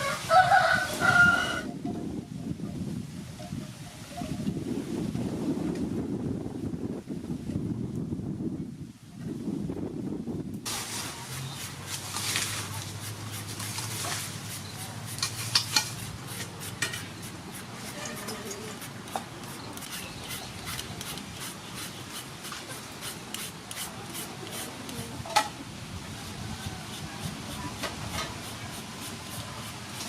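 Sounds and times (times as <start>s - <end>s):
utensils stirring and scraping: 10.7s - 25.5s, 26.2s - 30.0s.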